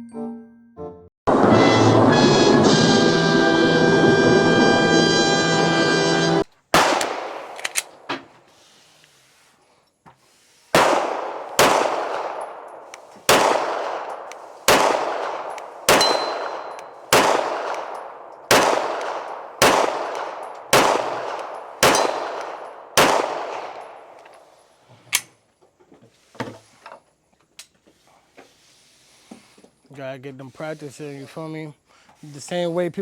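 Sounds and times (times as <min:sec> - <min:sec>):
gunshots with echo: 0:06.7 - 0:08.1, 0:10.8 - 0:24.2.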